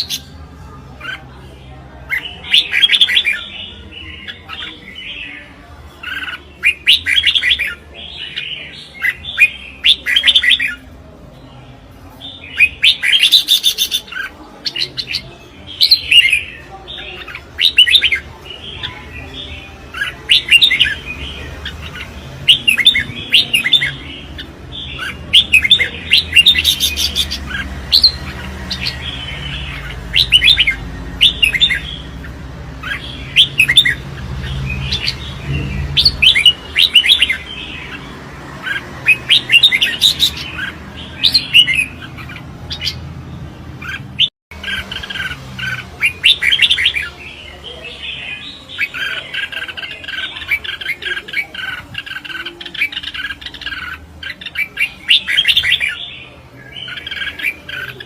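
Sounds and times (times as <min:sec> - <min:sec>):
bulbuls singing: 0:00.0 - 0:58.0.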